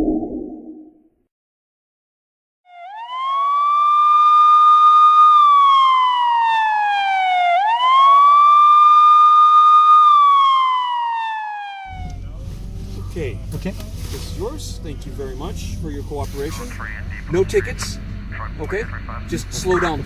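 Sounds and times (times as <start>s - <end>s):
police siren wailing: 2.7s - 15.8s.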